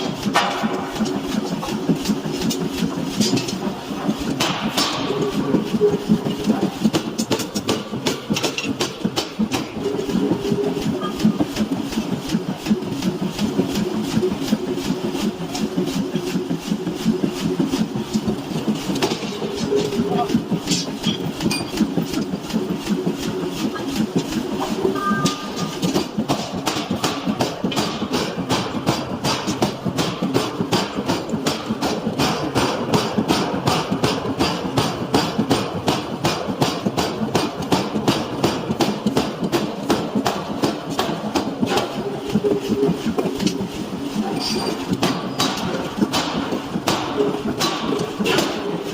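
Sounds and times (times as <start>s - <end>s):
low machine rumble: 0.0s - 48.9s
hammer striking steel: 4.4s - 5.3s, 25.0s - 25.8s.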